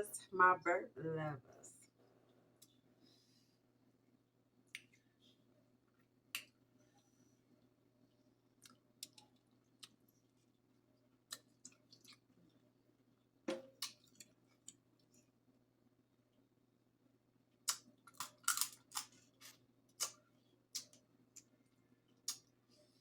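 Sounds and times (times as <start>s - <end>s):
faint steady hum: 0.0s - 23.0s
wet chewing clicks and smacks: 8.6s - 10.1s, 11.3s - 12.6s, 17.6s - 22.6s.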